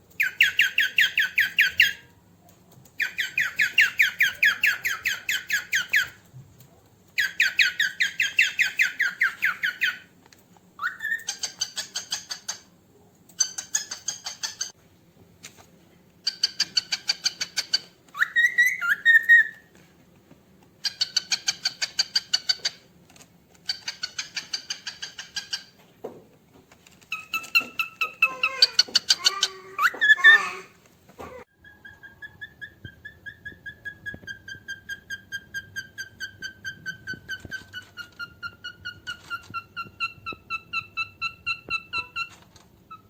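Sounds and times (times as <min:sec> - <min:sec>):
cockatiel rapid chirps: 0:00.2 - 0:02.1, 0:03.0 - 0:06.2, 0:07.2 - 0:10.1, 0:10.8 - 0:12.7, 0:13.4 - 0:14.8, 0:16.2 - 0:19.7, 0:20.8 - 0:22.8, 0:23.7 - 0:25.7, 0:27.1 - 0:30.4, 0:31.6 - 0:43.0.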